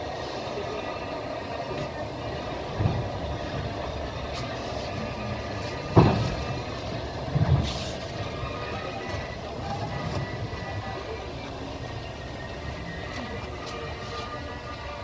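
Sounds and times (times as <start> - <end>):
wheels clacking over rail joints: 0.0 - 14.6
train carriage rumbling: 0.0 - 15.0
knocks: 5.8 - 6.6.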